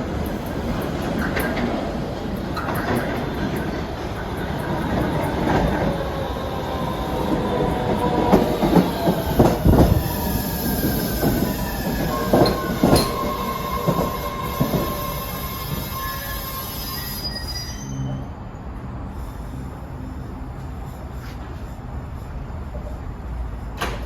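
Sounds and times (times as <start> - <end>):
train rumbling on rails: 0.0 - 24.0
wheel squeal: 5.6 - 18.3.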